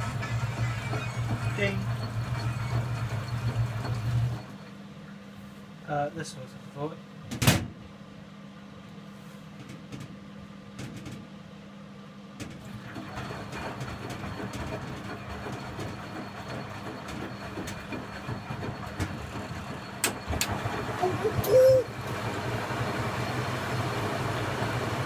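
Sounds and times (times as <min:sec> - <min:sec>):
washing machine rumbling: 0:00.0 - 0:04.7, 0:12.3 - 0:25.0
washing machine hum: 0:00.0 - 0:25.0.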